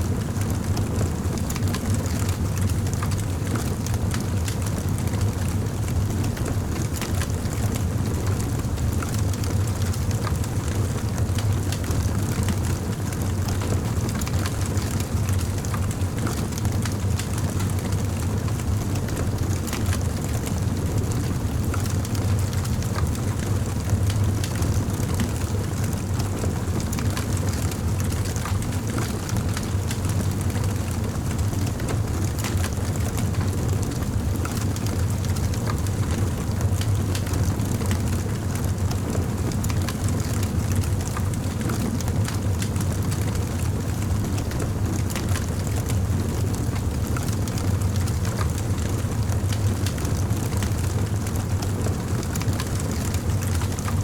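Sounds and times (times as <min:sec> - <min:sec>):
low fire rumble: 0:00.0 - 0:54.0.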